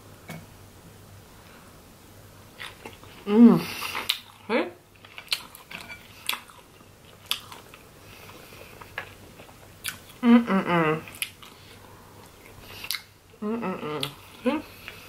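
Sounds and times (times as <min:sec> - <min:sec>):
chewing: 0:02.6 - 0:03.2, 0:05.0 - 0:10.2, 0:11.0 - 0:13.1, 0:14.0 - 0:15.0.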